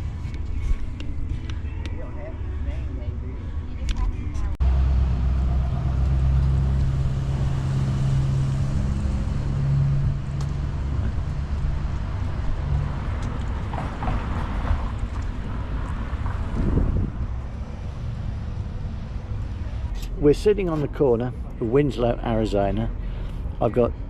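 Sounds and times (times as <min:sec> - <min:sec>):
vehicle engine humming: 0:00.0 - 0:24.0
wind buffeting microphone: 0:05.0 - 0:18.3.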